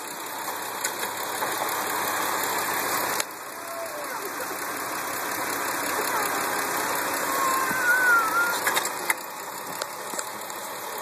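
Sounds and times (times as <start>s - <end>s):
car engine running: 0.0s - 11.0s
thin wavering whistle: 7.3s - 8.7s.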